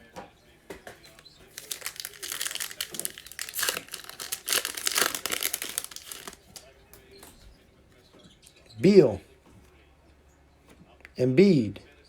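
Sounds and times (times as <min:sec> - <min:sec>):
foil wrapper crinkling: 0:01.1 - 0:06.6.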